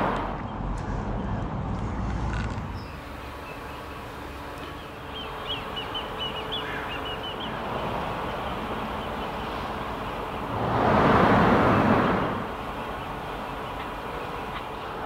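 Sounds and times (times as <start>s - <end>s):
outdoor background noise: 0.0s - 15.0s
small bird chirping high notes: 2.8s - 10.5s
rush of noise: 10.4s - 12.8s.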